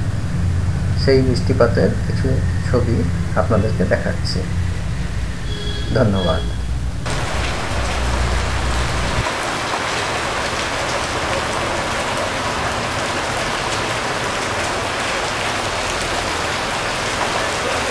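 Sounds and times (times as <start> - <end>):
low rumble: 0.0 - 9.3
rain pouring on street: 0.0 - 17.9.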